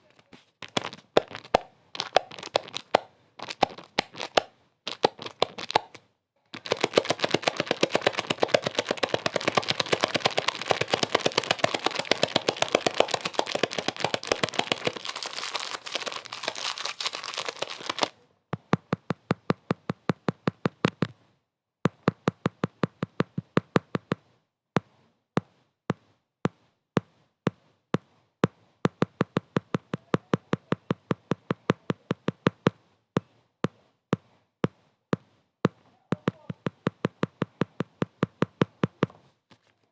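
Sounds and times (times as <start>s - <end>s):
crackling clicks: 0.1s - 6.0s, 6.6s - 18.1s.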